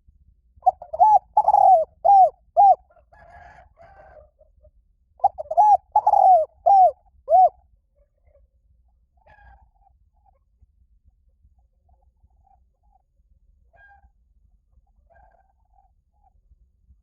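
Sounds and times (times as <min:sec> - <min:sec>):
dove cooing: 0:00.6 - 0:02.9, 0:05.2 - 0:07.6.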